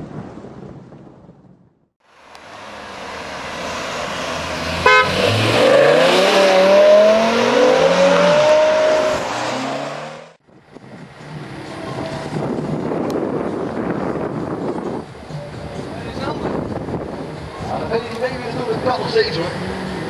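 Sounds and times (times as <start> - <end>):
car engine accelerating hard: 2.4 - 10.4.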